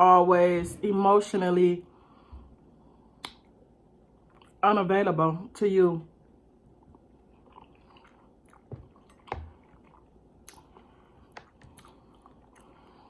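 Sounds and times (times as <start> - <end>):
person chewing food: 4.1 - 4.6, 6.7 - 13.0.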